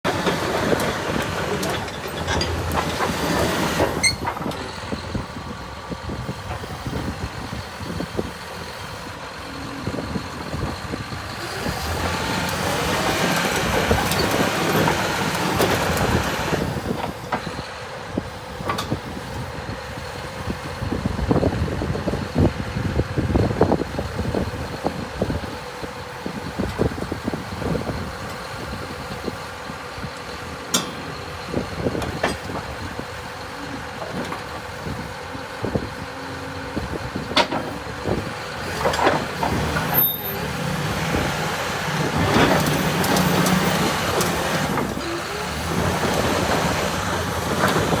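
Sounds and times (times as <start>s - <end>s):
diesel engine running: 0.0s - 48.0s
clanks and knocks: 0.1s - 4.7s, 30.7s - 31.2s, 37.2s - 37.8s.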